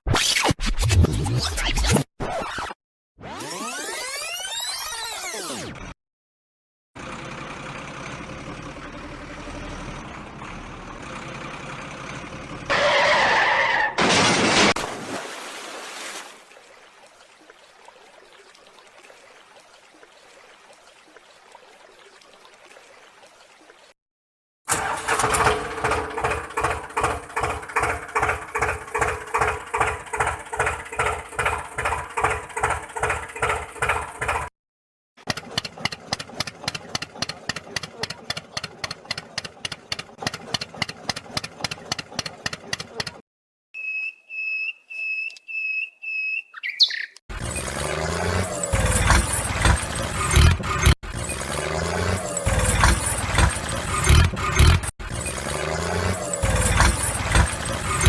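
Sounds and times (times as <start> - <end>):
tractor engine chugging: 7.0 - 12.7, 24.7 - 34.5, 35.2 - 43.2, 47.4 - 58.0
loud engine bursts: 24.7 - 34.5, 47.3 - 58.0.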